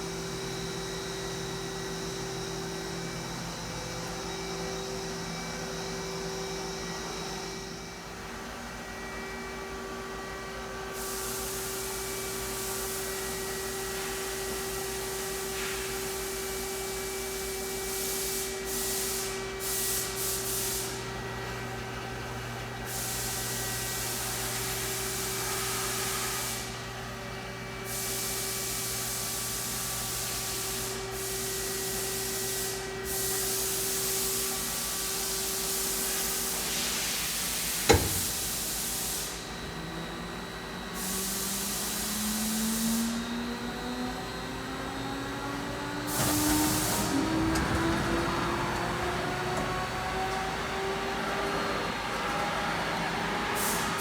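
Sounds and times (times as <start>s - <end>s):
hiss: 17.8s - 21.0s, 41.0s - 43.2s, 46.1s - 51.5s, 53.5s - 54.0s
spindle whine rising: 45.1s - 53.6s
machine hum: 45.5s - 53.5s.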